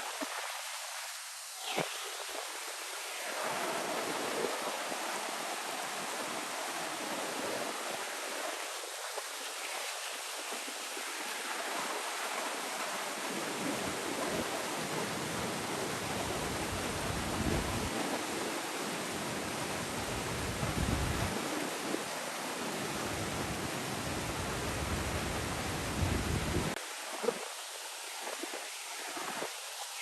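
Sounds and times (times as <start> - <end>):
wind buffeting microphone: 13.8 - 18.6, 19.2 - 22.1, 23.0 - 26.8.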